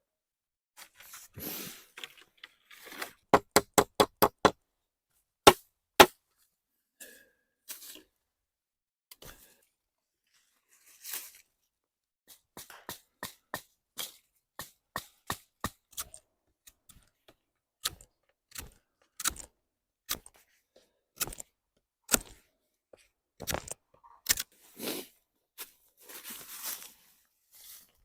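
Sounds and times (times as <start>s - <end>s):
hand tool striking wood: 3.3s - 4.6s, 5.5s - 6.2s, 12.3s - 16.1s.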